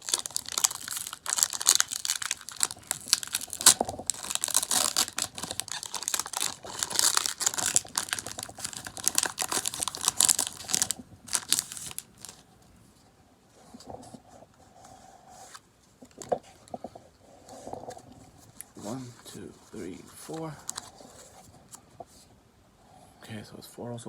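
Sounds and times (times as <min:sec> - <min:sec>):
foil wrapper crinkling and tearing: 0:00.0 - 0:12.4, 0:19.8 - 0:21.0.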